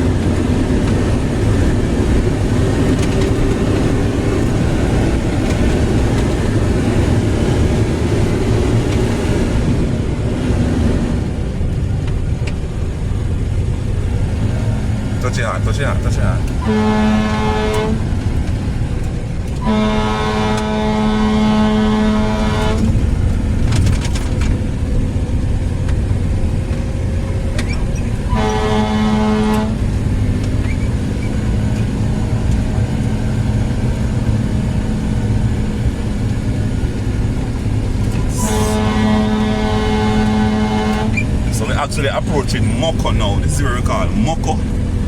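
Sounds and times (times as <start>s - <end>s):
car road and engine noise: 0.0s - 45.0s
vehicle horn blasts: 16.6s - 18.2s, 19.5s - 23.0s, 28.3s - 29.9s, 38.1s - 41.4s.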